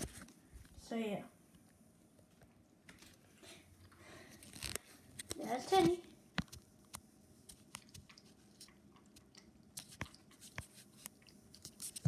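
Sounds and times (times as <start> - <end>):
cat chewing wet food: 7.5 - 12.0.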